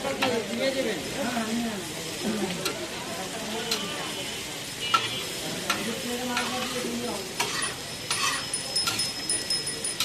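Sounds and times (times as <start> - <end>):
food sizzling on griddle: 0.0 - 10.0
metal spatula scraping pan: 4.8 - 9.2.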